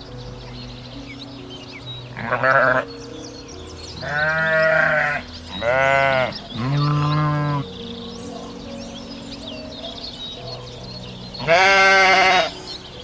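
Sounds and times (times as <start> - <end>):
farm animal bleating: 2.1 - 2.9, 4.0 - 7.7, 11.4 - 12.6.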